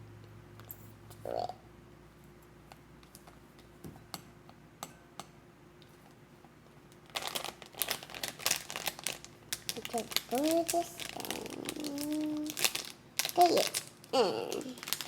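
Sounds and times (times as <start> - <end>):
bag crinkling: 7.0 - 15.0.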